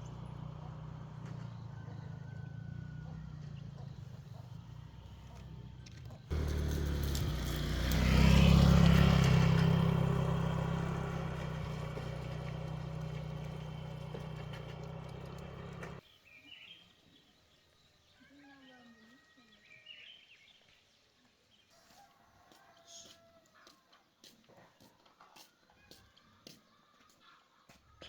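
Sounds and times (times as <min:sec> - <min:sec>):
small motorbike engine running: 0:00.0 - 0:16.0.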